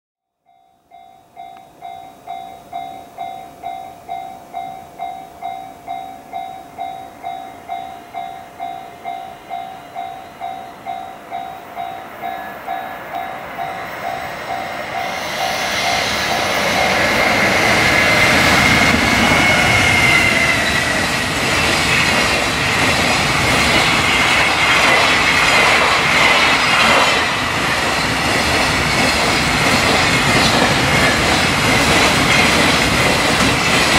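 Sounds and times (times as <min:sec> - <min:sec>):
level crossing warning bell: 0:00.4 - 0:24.8
high steady whine: 0:00.8 - 0:33.9
freight train passing: 0:00.9 - 0:33.9.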